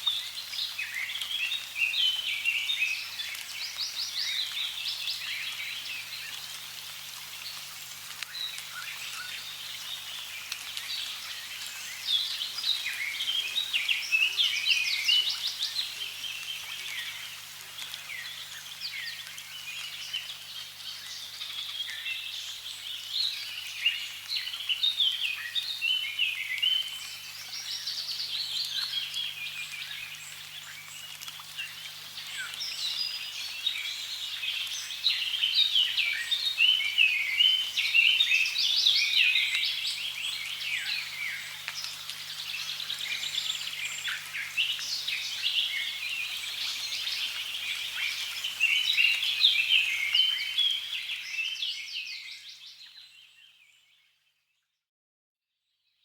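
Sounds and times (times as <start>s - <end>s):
faint running water: 0.0s - 51.2s
birds chirping and trilling: 18.0s - 53.8s.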